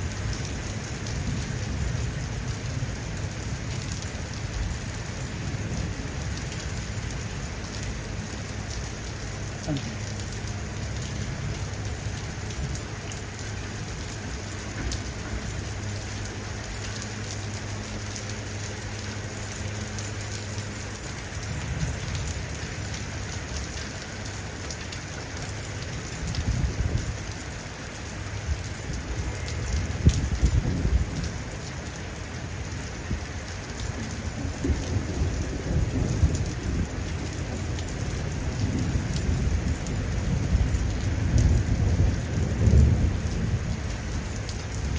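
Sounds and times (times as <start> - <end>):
heavy rain falling: 0.0 - 44.9
low thunder rumbling: 28.4 - 44.9.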